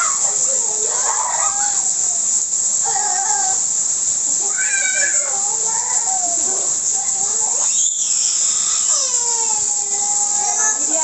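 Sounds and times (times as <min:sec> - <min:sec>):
high wavering calls: 0:07.5 - 0:11.0.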